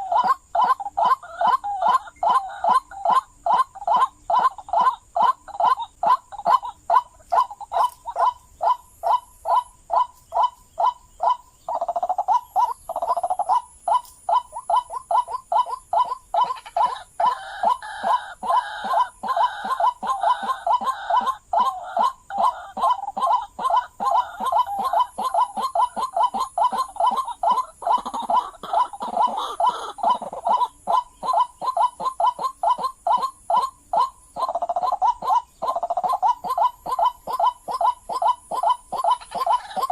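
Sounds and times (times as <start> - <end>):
waterhen harsh calls: 12.1 - 39.9.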